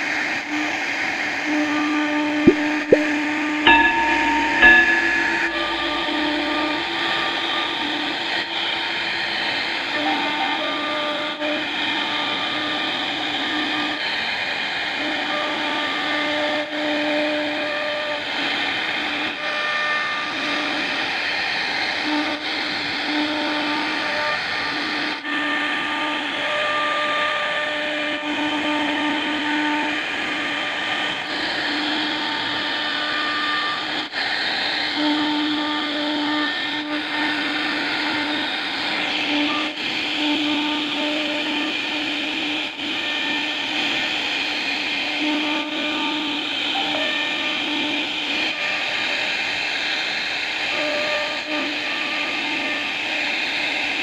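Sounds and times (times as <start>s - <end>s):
pitched hum: 2.4s - 8.8s
cnc router cutting wood: 5.8s - 54.0s.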